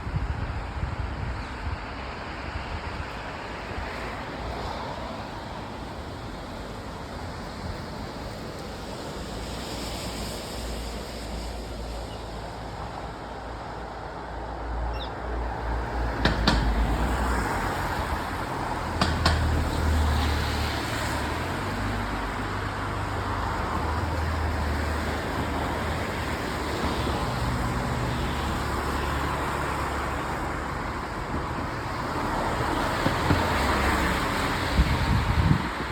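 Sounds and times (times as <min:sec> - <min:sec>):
wind buffeting microphone: 0:00.0 - 0:10.8, 0:29.4 - 0:35.9
road traffic noise: 0:00.0 - 0:35.9.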